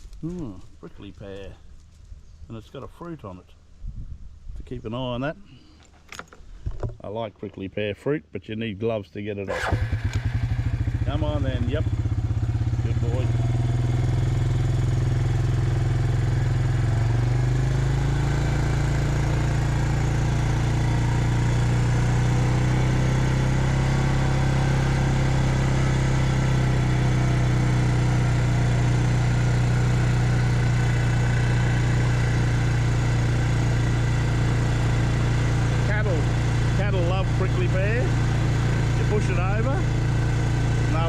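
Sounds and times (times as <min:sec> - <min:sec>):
farm vehicle engine running: 0:09.5 - 0:41.0.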